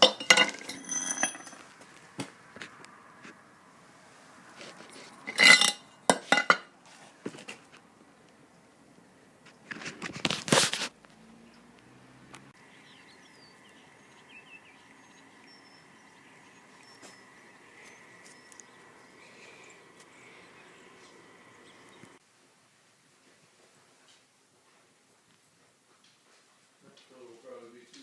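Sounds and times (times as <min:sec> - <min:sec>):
birds chirping: 0:11.2 - 0:22.2.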